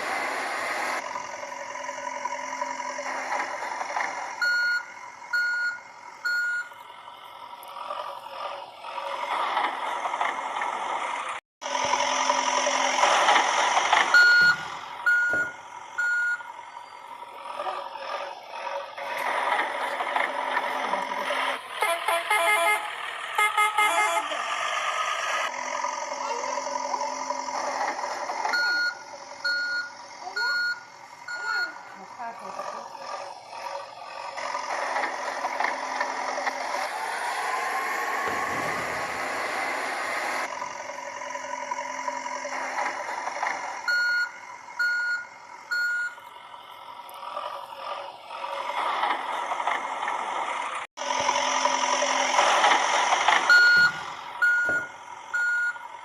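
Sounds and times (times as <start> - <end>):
toy truck engine sound effect: 0.0 - 56.0
reversing beeps: 4.4 - 6.8, 14.1 - 17.0, 28.5 - 31.8, 43.9 - 46.2, 53.5 - 55.8.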